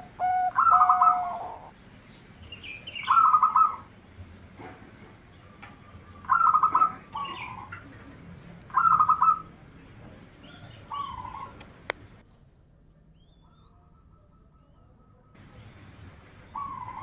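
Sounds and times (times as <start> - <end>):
dove cooing: 0.0 - 1.7, 3.0 - 3.9, 5.4 - 8.0, 8.7 - 9.6, 10.4 - 11.9, 16.4 - 17.0.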